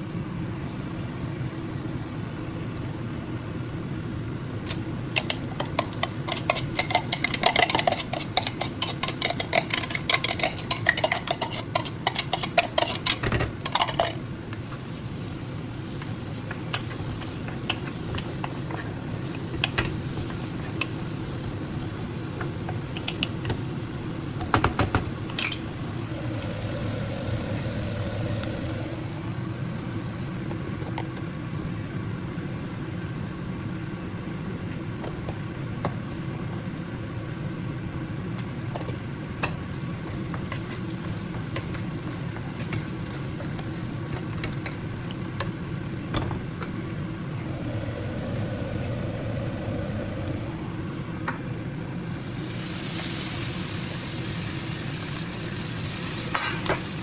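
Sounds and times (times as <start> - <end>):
low appliance hum: 0.0 - 57.0
food sizzling in a pan: 14.6 - 30.5, 39.7 - 46.0, 47.4 - 51.1, 52.0 - 57.0.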